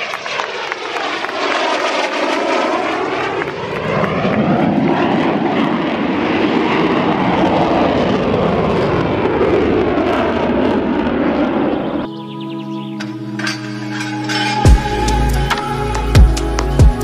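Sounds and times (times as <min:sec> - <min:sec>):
aircraft flying past: 0:00.0 - 0:16.9.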